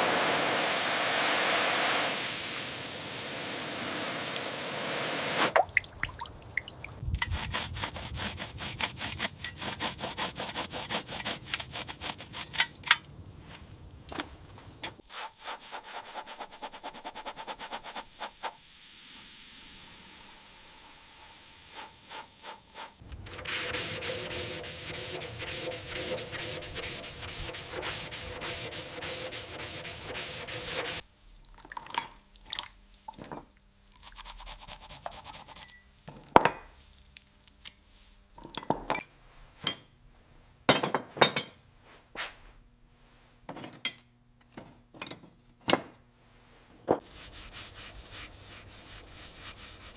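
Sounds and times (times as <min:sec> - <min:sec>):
abrasive rubbing like sanding: 0:07.3 - 0:12.6, 0:21.7 - 0:31.0, 0:47.0 - 0:49.9.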